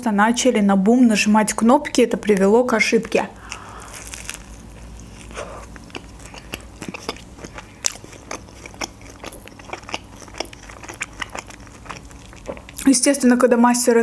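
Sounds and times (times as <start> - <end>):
wet chewing: 2.2 - 12.9.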